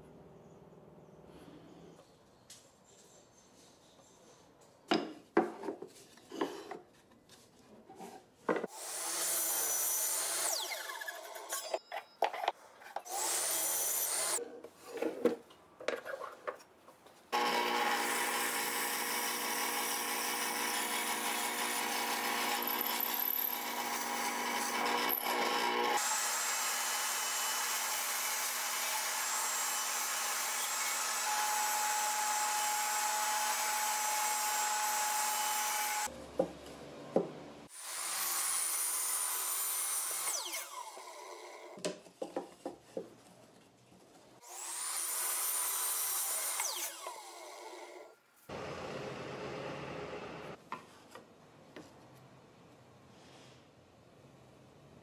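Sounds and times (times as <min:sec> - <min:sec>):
miter saw cutting plywood: 0:17.3 - 0:36.1
drill press boring wood: 0:17.4 - 0:36.1.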